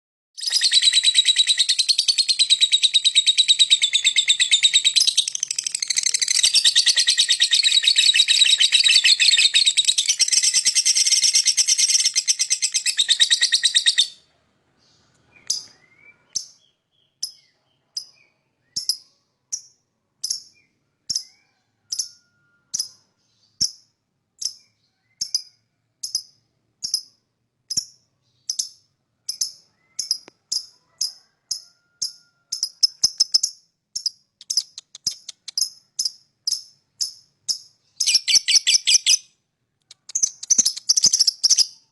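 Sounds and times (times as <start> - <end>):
bird chattering trill: 0.4 - 14.2, 27.7 - 39.2, 39.9 - 41.9
bird sharp chirps: 0.4 - 31.4, 32.0 - 41.9.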